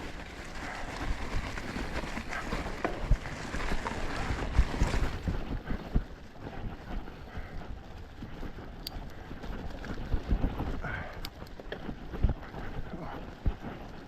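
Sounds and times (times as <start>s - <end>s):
bike knocks and rattles: 0.0s - 6.6s
bike tyres rolling on dirt: 0.0s - 14.0s
wind buffeting microphone: 0.0s - 14.0s.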